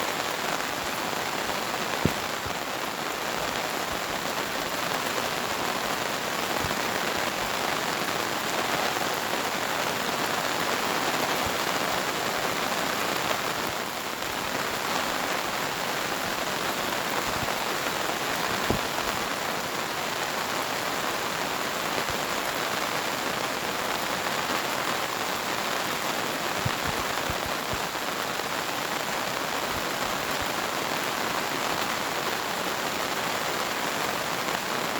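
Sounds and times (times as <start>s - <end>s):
pouring rain: 0.0s - 34.9s.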